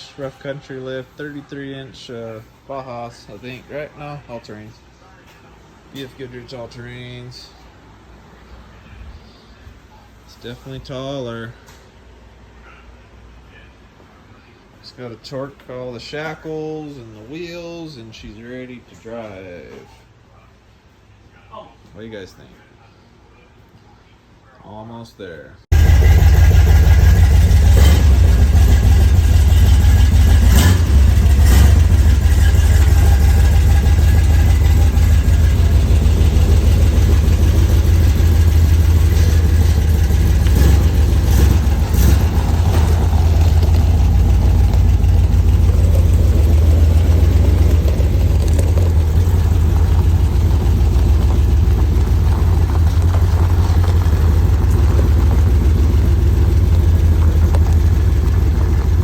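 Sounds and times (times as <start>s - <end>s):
engine rumbling: 25.7s - 59.0s.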